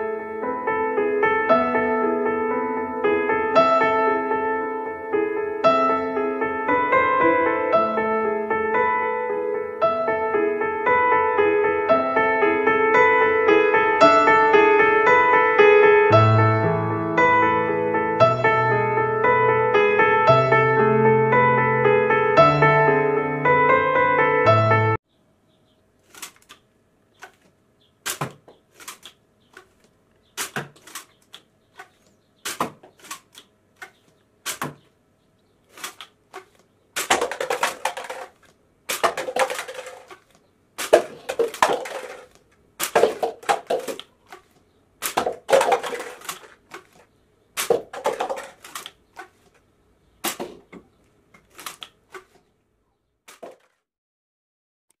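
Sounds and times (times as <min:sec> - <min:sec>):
objects clicking and knocking: 0:26.1 - 0:26.6, 0:28.1 - 0:34.8, 0:35.7 - 0:49.6, 0:50.2 - 0:52.4, 0:53.3 - 0:53.8.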